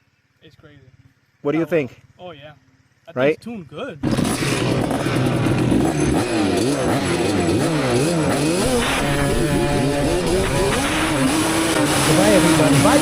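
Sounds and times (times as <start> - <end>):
two-stroke engine revving: 4.0 - 13.0.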